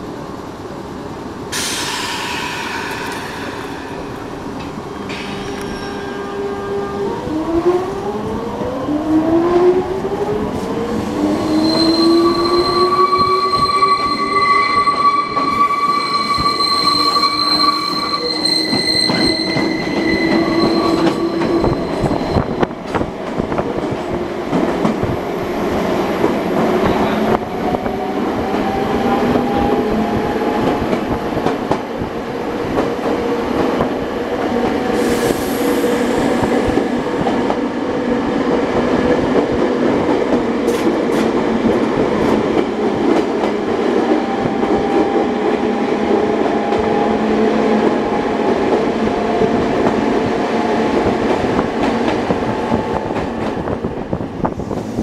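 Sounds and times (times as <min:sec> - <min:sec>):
train wheels squealing on rails: 0:01.5 - 0:06.7, 0:11.2 - 0:23.0, 0:34.8 - 0:37.3
train wheels rumbling: 0:01.5 - 0:08.4, 0:09.5 - 0:55.0.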